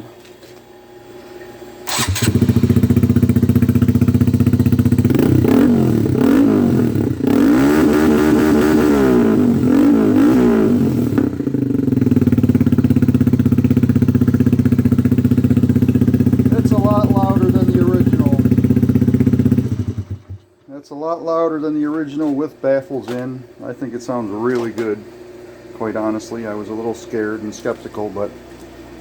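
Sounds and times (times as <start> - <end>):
motorcycle engine starting: 1.8 - 20.6
motorcycle engine idling: 1.9 - 7.5, 9.2 - 20.5
motorcycle engine revving: 1.9 - 20.5.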